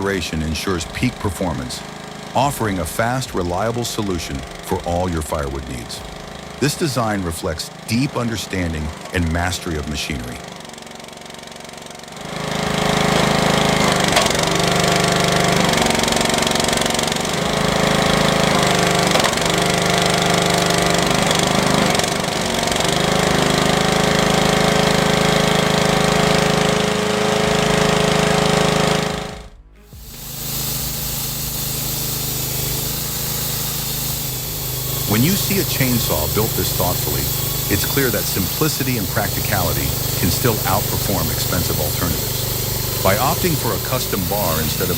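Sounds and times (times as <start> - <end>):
lawnmower engine running log splitter: 0.0 - 44.9
quieter steady machine hum: 0.0 - 44.9
music playing: 28.2 - 44.9.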